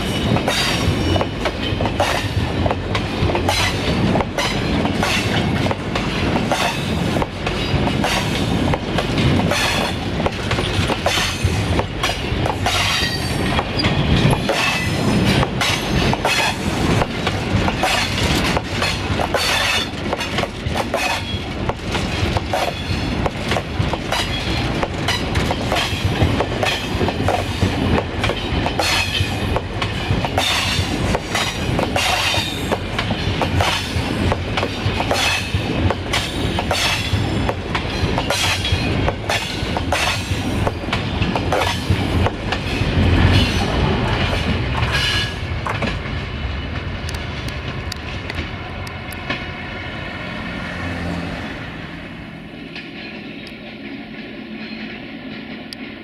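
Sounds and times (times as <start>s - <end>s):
train wheels clattering on rails: 0.0s - 49.6s, 52.4s - 56.0s.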